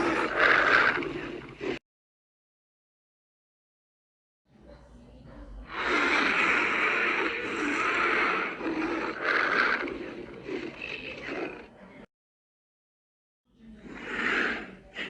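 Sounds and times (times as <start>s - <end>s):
monster hissing growl: 0.0s - 1.8s, 5.7s - 11.7s, 13.8s - 15.0s.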